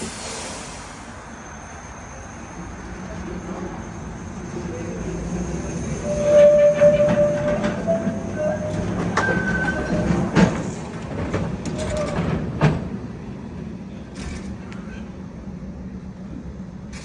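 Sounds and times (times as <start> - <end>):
tram rolling with low rumble: 0.0 - 17.0
high-pitched steel wheel squeals: 1.7 - 10.4.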